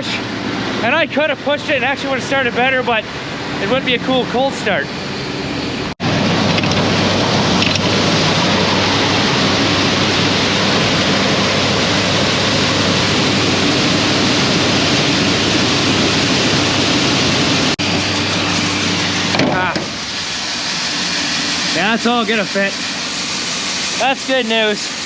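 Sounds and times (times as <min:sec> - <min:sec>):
tractor diesel engine running: 0:06.0 - 0:25.0
loud even rushing noise: 0:17.5 - 0:25.0.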